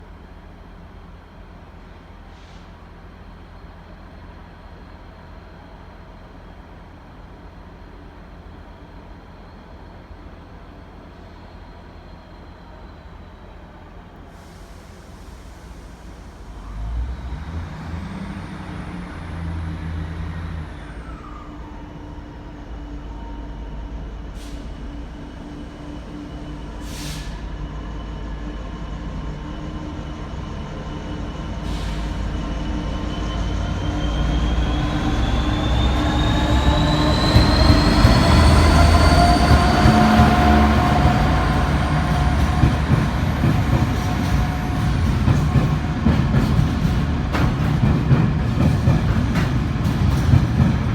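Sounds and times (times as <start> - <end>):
diesel locomotive engine passing: 0.0 - 50.9.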